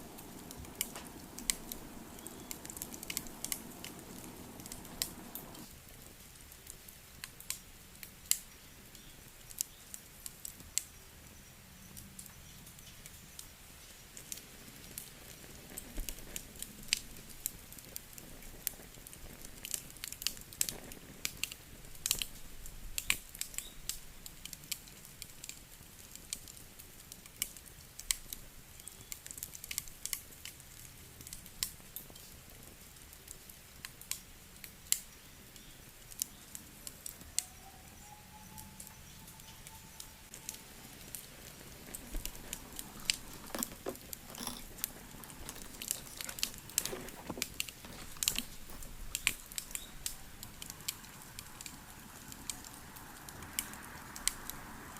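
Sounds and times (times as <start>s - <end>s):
wood fire snaps and pops: 0.0s - 11.0s, 12.2s - 37.5s, 39.9s - 54.6s
low steady fire hiss: 0.0s - 54.9s.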